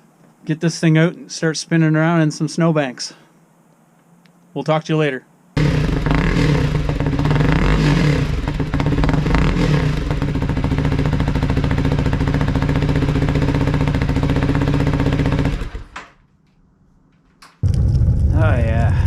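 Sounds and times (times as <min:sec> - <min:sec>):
vehicle engine revving: 0:05.6 - 0:15.9.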